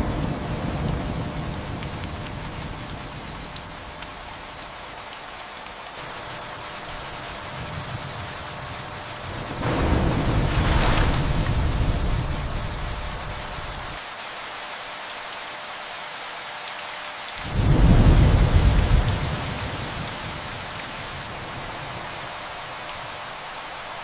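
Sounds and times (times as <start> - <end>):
steady rain: 0.0 - 24.0
rolling thunder: 9.3 - 14.0, 17.5 - 20.5.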